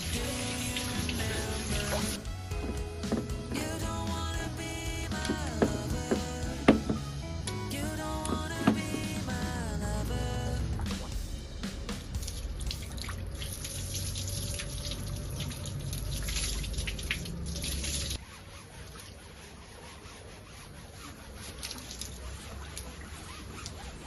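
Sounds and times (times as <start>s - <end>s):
water running and splashing: 0.0s - 3.6s, 12.0s - 18.2s, 21.0s - 24.0s
water dripping: 12.2s - 18.2s.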